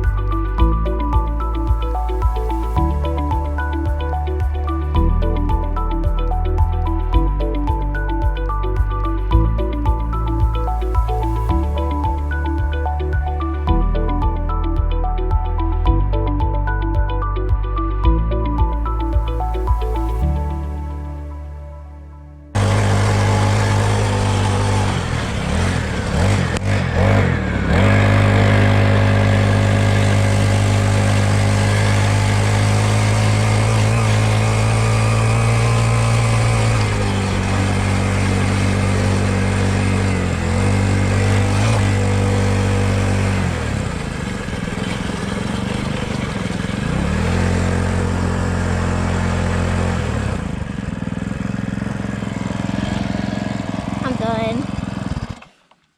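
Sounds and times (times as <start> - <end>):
dirt bike engine revving: 22.6 - 55.5.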